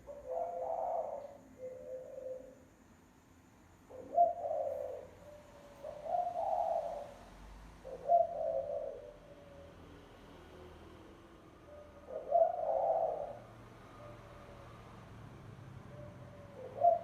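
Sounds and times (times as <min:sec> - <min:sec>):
dove cooing: 0:00.0 - 0:02.7, 0:03.9 - 0:09.6, 0:11.6 - 0:14.5, 0:15.8 - 0:17.0.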